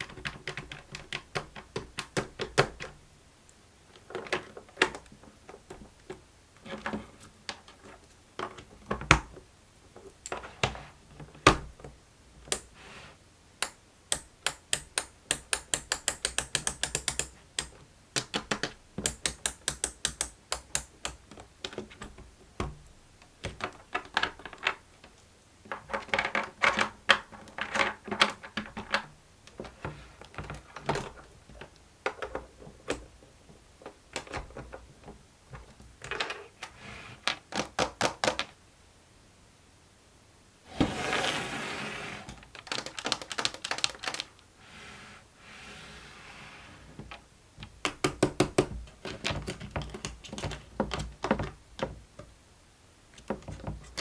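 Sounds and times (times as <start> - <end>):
plastic busy board clicks: 0.0 - 3.0, 10.2 - 12.8, 13.6 - 33.1, 35.6 - 38.6, 42.3 - 44.4, 47.1 - 52.0.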